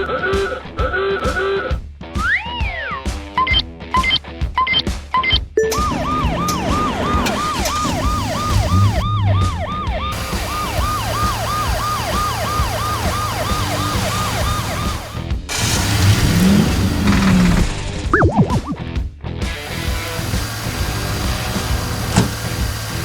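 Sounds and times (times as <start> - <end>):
siren yelping: 5.6 - 15.2.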